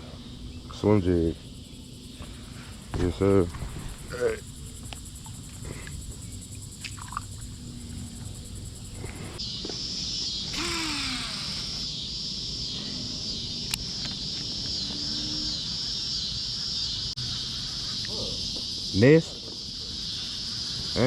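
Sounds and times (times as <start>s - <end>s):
insect chorus drone: 0.0s - 21.0s
sharp click: 10.6s - 11.9s.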